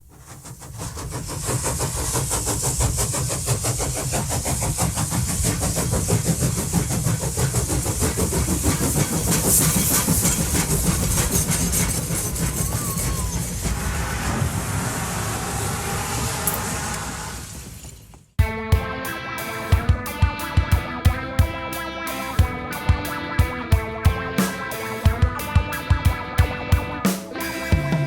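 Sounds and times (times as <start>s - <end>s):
locomotive hiss: 0.0s - 18.2s
locomotive running: 0.2s - 18.3s.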